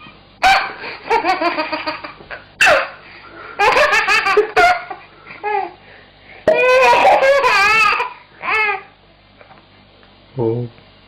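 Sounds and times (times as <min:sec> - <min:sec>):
toy doll laughing: 0:06.5 - 0:08.7.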